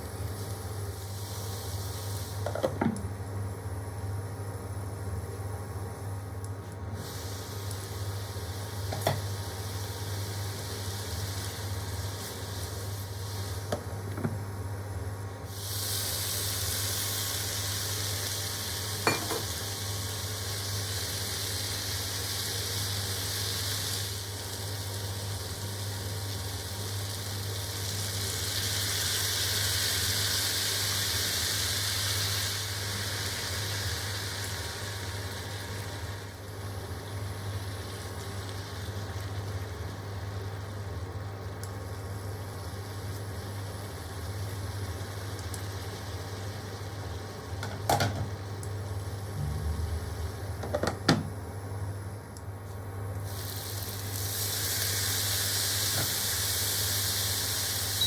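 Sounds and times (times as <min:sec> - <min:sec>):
vegetables sizzling in a pan: 0:00.0 - 0:03.8, 0:06.9 - 0:51.3, 0:53.2 - 0:58.0
steady low hum: 0:34.0 - 0:53.3.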